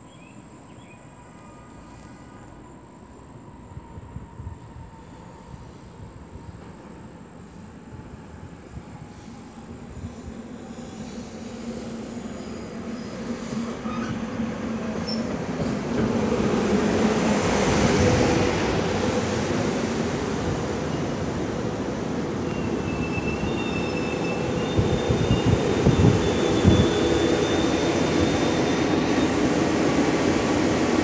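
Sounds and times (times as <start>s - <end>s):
train rumble and hum: 1.7s - 31.0s
faint high squeal: 9.0s - 14.3s, 22.4s - 29.4s.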